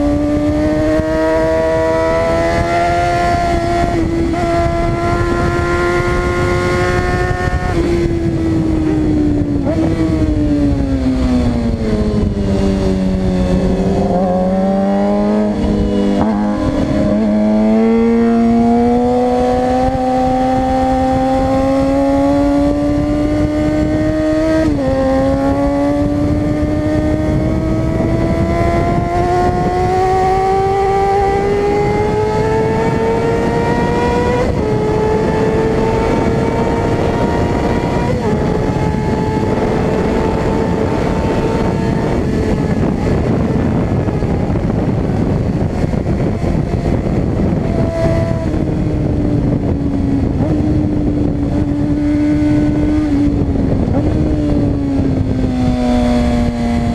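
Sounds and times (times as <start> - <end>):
motorcycle engine revving: 0.0 - 56.9
wind rush: 0.0 - 56.9.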